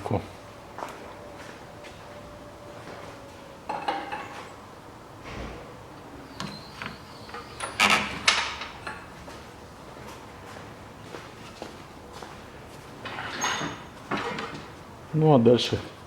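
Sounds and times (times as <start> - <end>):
metallic clanks and scraping: 13.0 - 14.7.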